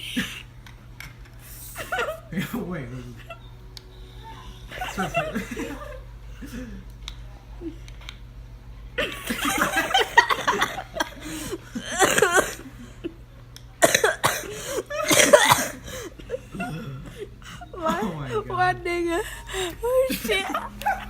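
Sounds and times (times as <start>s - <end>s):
person laughing: 4.7s - 6.8s, 14.8s - 18.5s, 19.4s - 21.0s
person coughing hard: 11.8s - 12.7s, 13.8s - 17.1s.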